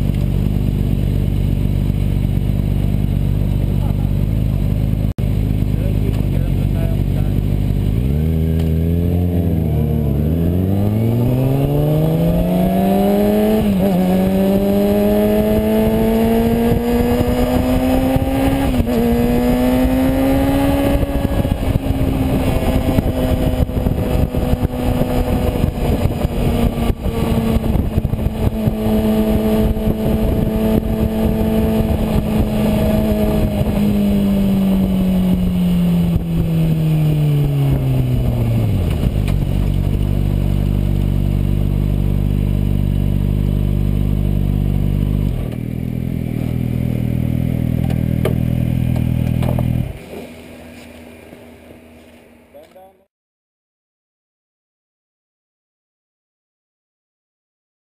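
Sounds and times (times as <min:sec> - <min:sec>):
motorcycle engine accelerating: 0:00.0 - 0:53.0
wind buffeting microphone: 0:10.8 - 0:40.1.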